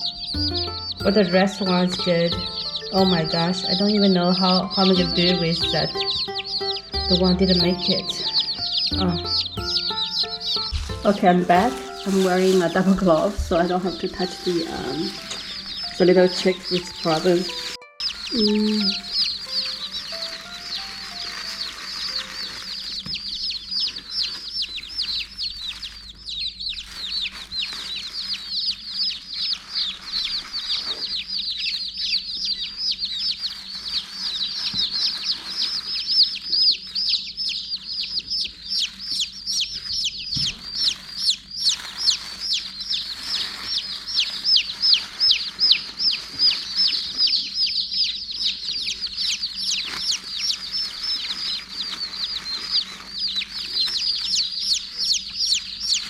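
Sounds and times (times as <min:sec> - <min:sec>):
baby chicks peeping: 0:00.0 - 0:56.0
rustling: 0:07.4 - 0:31.9, 0:32.9 - 0:37.0, 0:38.8 - 0:47.5, 0:49.0 - 0:56.0.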